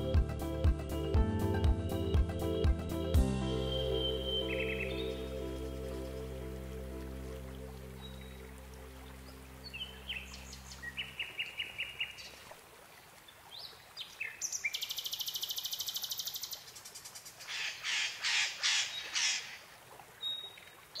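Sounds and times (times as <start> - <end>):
background music: 0.0 - 11.0
loud bird calls: 17.5 - 19.6.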